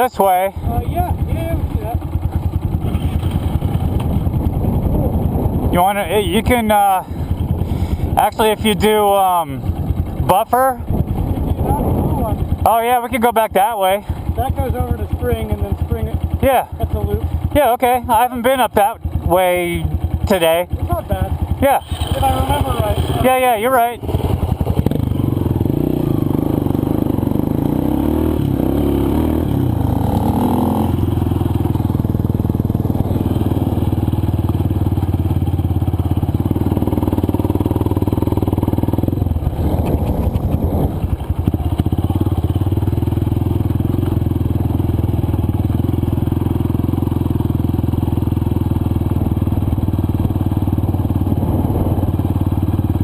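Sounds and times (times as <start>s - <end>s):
dirt bike engine running: 0.0s - 53.0s.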